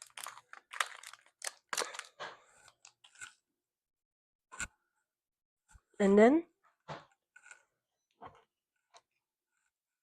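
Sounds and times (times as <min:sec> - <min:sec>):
slime with beads crackling: 0:00.0 - 0:02.9.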